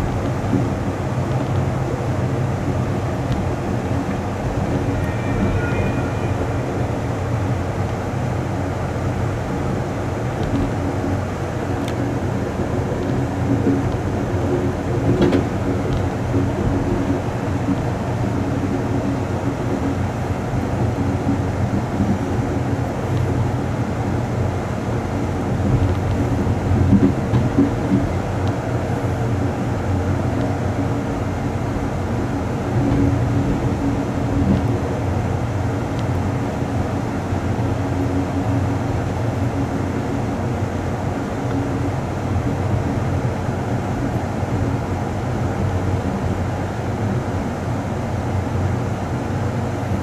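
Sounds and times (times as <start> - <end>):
train wheels rumbling on rail: 0.0 - 50.0.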